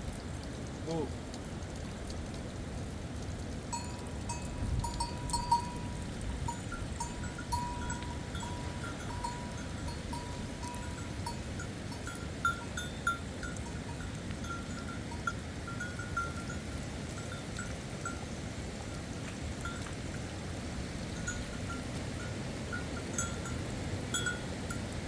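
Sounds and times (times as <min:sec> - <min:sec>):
livestock bells clinking: 0:03.7 - 0:16.6, 0:21.2 - 0:24.8.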